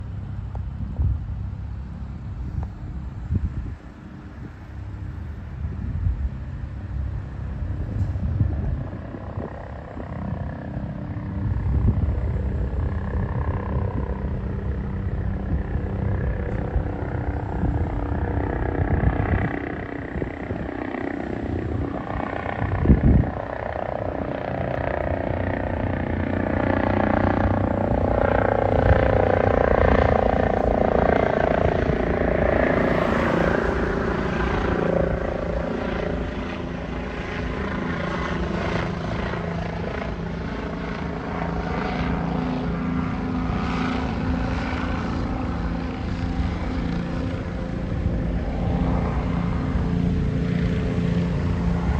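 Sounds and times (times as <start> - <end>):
helicopter rotor and engine: 0.0 - 51.9.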